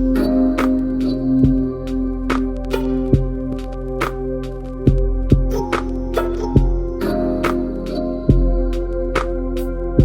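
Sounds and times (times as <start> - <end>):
held notes and chords: 0.0 - 10.0
crisp high percussion strikes: 4.9 - 9.7.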